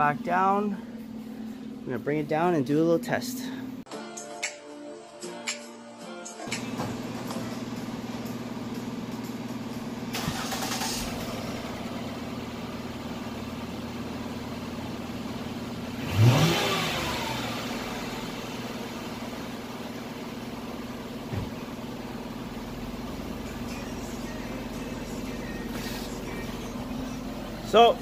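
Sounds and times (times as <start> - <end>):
car engine starting and idling: 6.5 - 28.0.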